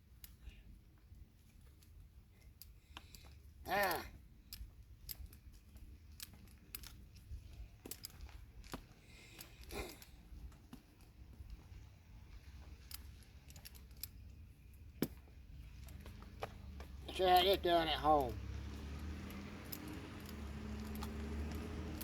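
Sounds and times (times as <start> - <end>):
rope and gear rustling: 0.0 - 22.0.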